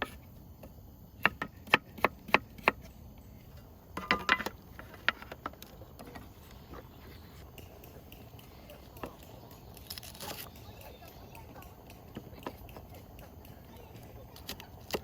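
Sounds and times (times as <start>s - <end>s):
knife chopping on wooden board: 1.2s - 2.8s.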